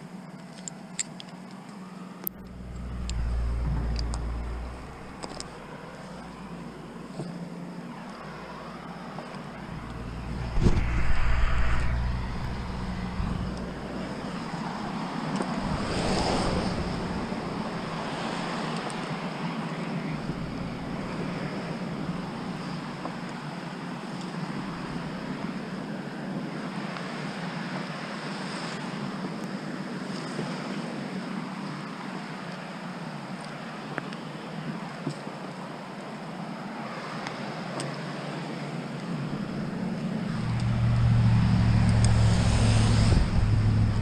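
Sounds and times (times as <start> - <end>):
steady traffic: 0.0 - 44.0
heavy low rumble with knock: 2.4 - 6.5, 9.6 - 14.6, 40.3 - 44.0
vehicle passing: 2.4 - 6.9, 8.2 - 18.6, 40.2 - 44.0.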